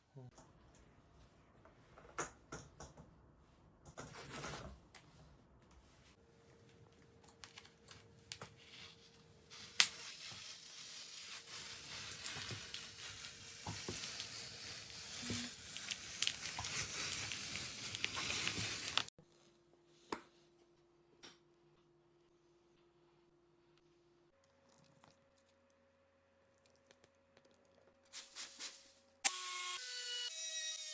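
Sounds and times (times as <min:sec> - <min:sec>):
crinkling rustling handling noise: 0:06.2 - 0:19.1.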